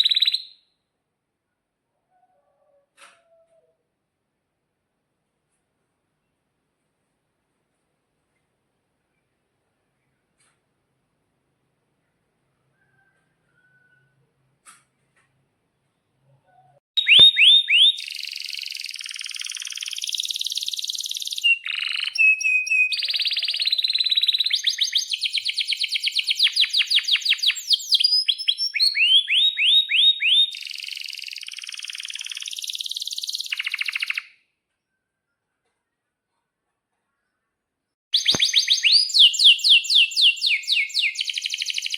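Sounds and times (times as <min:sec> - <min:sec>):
canary singing trills: 0:17.0 - 0:34.3, 0:38.1 - 0:41.9.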